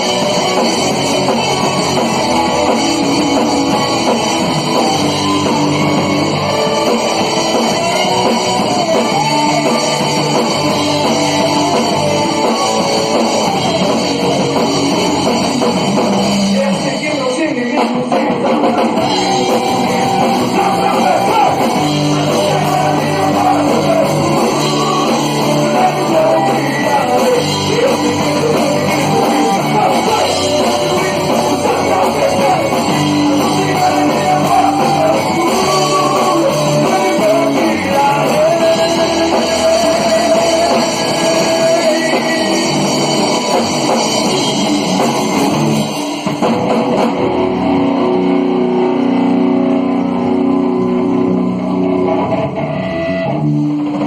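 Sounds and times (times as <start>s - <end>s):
person singing: 0.0s - 15.3s, 16.2s - 43.6s
drum kit: 0.0s - 54.0s
electric guitar: 0.0s - 54.0s.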